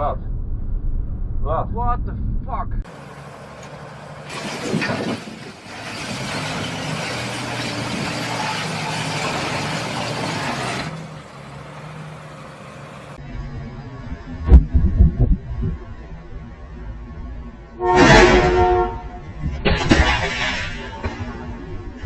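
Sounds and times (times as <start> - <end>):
car engine and tyre hum: 0.0 - 22.0
heavy low thumps: 0.1 - 2.9, 13.5 - 16.6.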